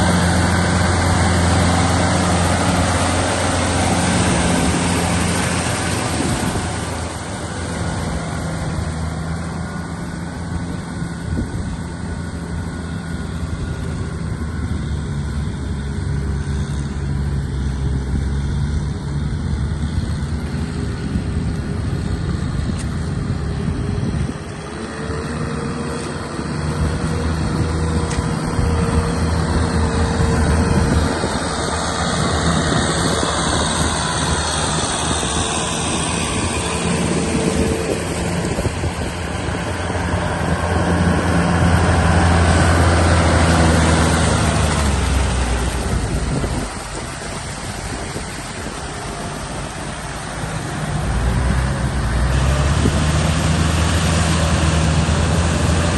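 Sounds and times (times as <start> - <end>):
tractor engine under load: 0.0 - 55.9.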